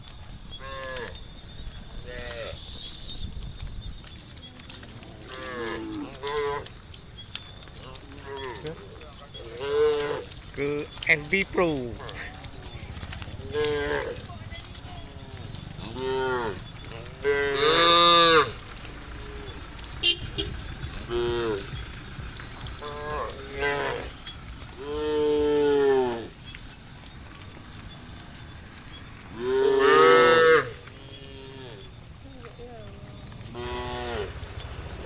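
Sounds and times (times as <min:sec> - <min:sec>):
cows mooing: 0:05.2 - 0:06.7, 0:07.9 - 0:26.5, 0:29.0 - 0:31.9, 0:33.5 - 0:35.0.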